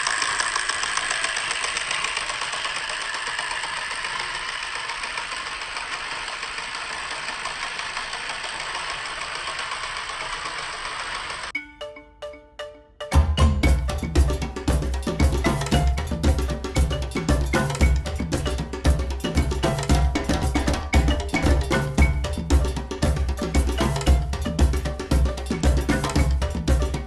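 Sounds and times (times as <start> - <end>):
toy train motor whirring: 0.0 - 11.5
music: 11.6 - 27.0.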